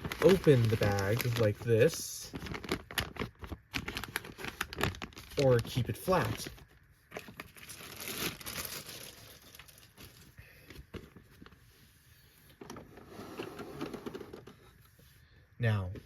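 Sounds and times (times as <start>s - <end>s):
paper bag crinkling and rustling: 0.0s - 11.6s.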